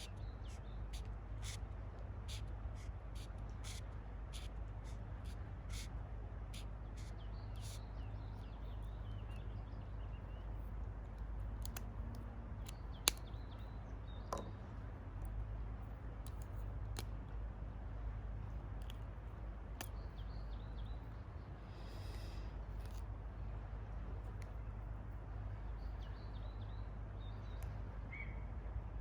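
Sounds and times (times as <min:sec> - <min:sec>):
faint bird chirps: 0:25.8 - 0:28.5.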